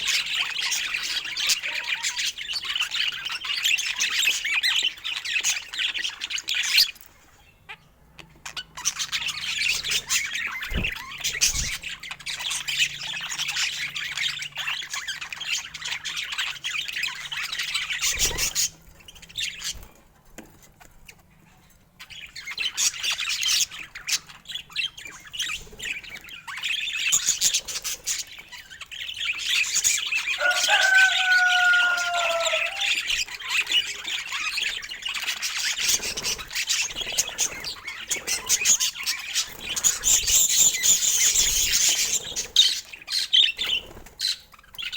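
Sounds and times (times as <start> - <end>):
budgerigars chattering: 0.0 - 7.0, 7.6 - 19.9, 22.0 - 44.9.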